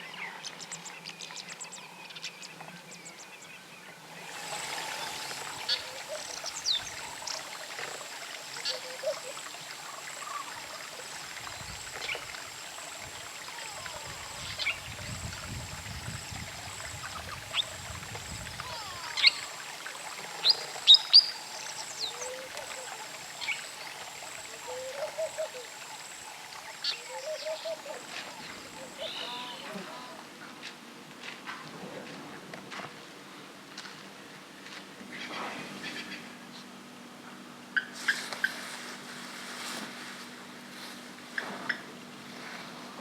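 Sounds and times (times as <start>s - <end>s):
steady outdoor hiss: 0.0s - 43.0s
wild birds chirping: 0.1s - 30.2s.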